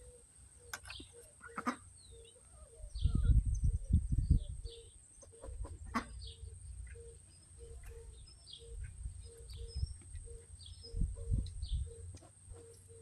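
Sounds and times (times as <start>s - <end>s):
chickens clucking: 0.6s - 2.0s, 5.2s - 13.0s.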